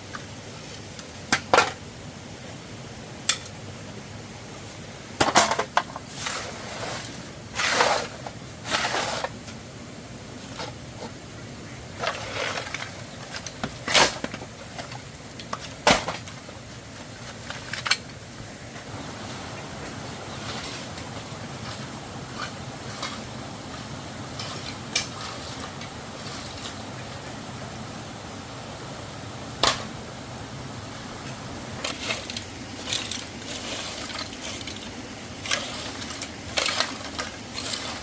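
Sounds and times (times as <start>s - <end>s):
objects knocking and clattering: 5.2s - 6.1s
rustling scraping swishes: 6.0s - 9.5s, 20.2s - 23.6s, 24.2s - 26.9s, 31.7s - 38.0s.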